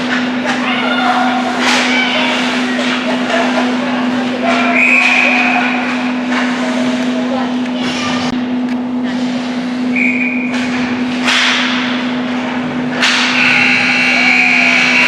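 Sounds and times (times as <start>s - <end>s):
steady hum: 0.0s - 15.0s
hockey sticks puck and skates: 1.6s - 3.7s.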